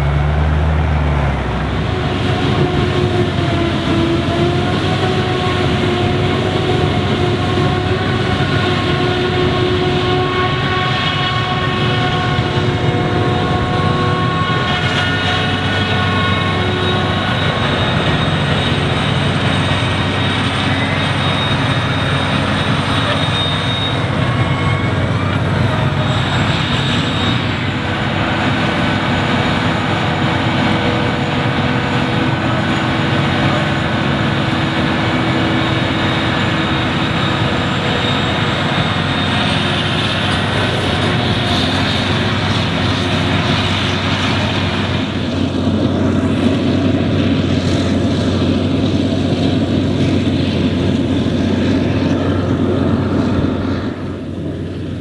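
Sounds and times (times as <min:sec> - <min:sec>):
heavy farm machinery running: 0:00.0 - 0:55.0.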